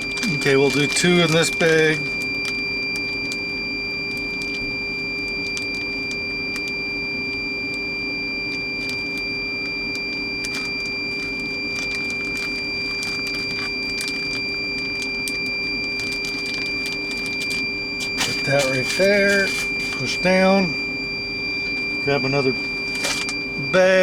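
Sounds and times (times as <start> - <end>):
plastic bags crinkling: 0.0 - 3.4, 10.4 - 20.3, 22.7 - 23.5
high whine: 0.0 - 24.0
machine hum: 0.0 - 24.0.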